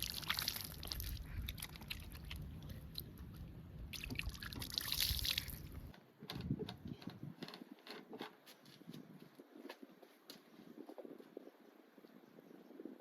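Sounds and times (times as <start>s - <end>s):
water running and sloshing: 0.0s - 2.4s, 3.9s - 5.9s.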